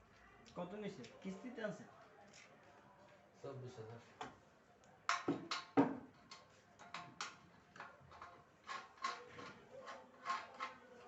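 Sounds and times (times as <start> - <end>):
hard parts clicking and knocking: 5.1 - 10.8.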